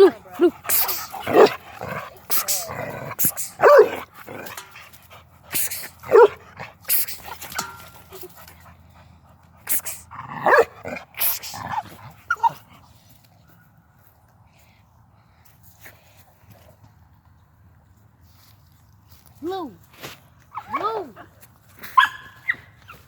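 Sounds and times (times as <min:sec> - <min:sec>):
dog barking: 0:00.7 - 0:01.6, 0:03.3 - 0:04.0, 0:05.6 - 0:06.4, 0:10.4 - 0:11.4, 0:22.0 - 0:22.6.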